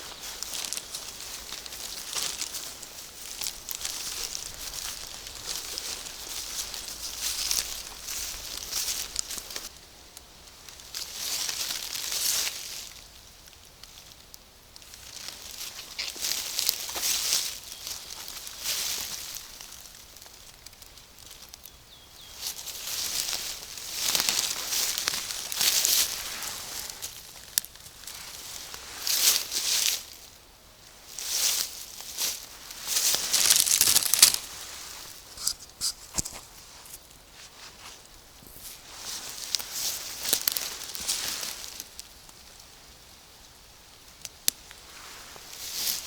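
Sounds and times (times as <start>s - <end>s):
twigs snapping: 0.0s - 10.3s, 14.8s - 21.7s, 22.4s - 30.2s, 31.2s - 37.1s, 38.0s - 42.1s
foliage rustling and brushing: 0.0s - 14.2s, 14.8s - 46.0s.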